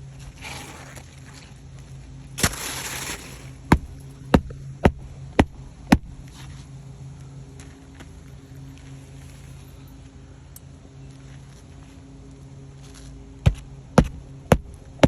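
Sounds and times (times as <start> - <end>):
scraping rush: 0.2 - 1.2, 2.4 - 4.1.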